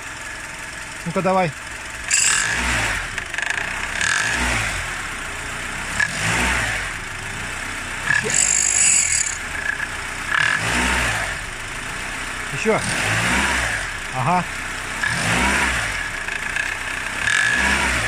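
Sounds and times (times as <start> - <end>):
car engine revving under load: 0.0 - 18.0
belt tensioner knocking: 2.1 - 4.2.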